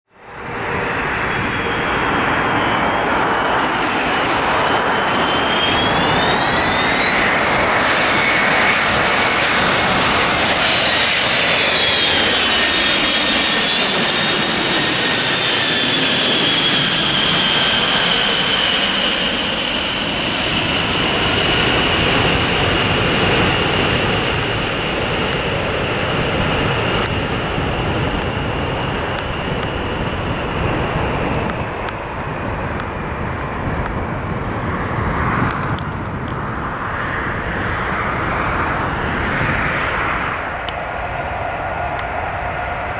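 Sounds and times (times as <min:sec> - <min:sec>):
jet aircraft roar and whine: 0:00.0 - 0:42.9.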